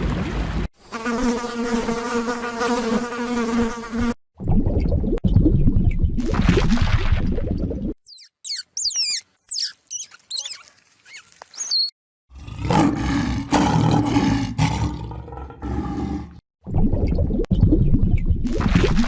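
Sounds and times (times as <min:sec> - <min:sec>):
animal squeaky calls: 0:08.0 - 0:11.9
animal rough growl: 0:12.3 - 0:16.4.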